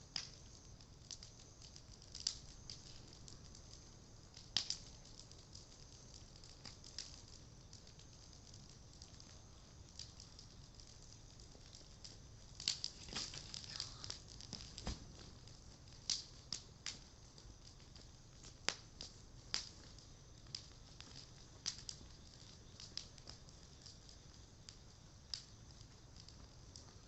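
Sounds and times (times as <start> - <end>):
bonfire crackling and popping: 0.0 - 27.0.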